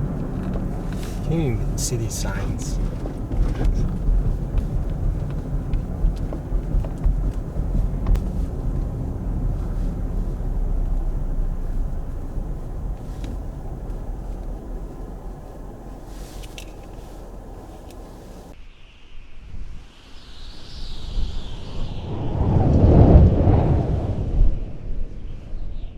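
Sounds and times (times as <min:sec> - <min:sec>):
car road and engine rumble: 0:00.0 - 0:18.6.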